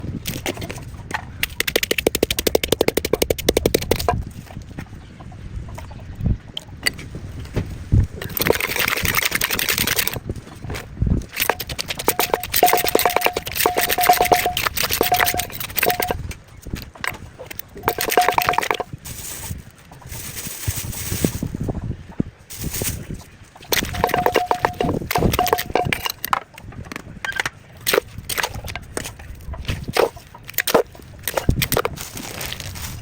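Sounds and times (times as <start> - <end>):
pestle pounding in mortar: 1.4 - 4.1, 8.3 - 10.2, 11.2 - 16.2, 17.7 - 20.7, 23.7 - 26.2.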